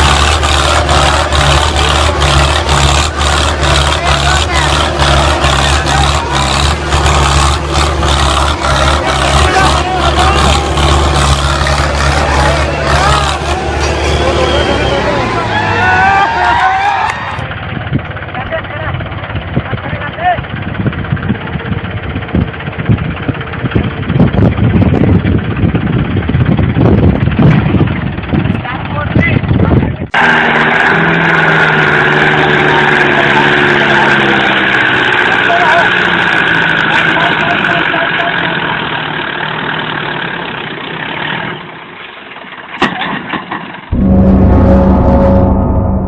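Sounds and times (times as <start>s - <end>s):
tractor engine running: 0.0s - 46.0s
loud music: 43.9s - 46.0s.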